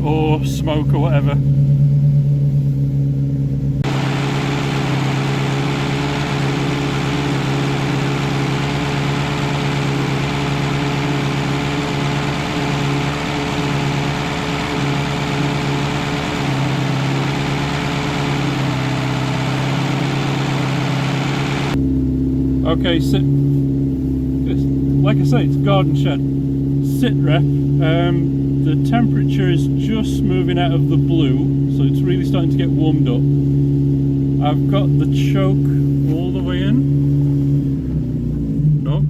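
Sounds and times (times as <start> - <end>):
car engine fast idle: 0.0 - 39.0.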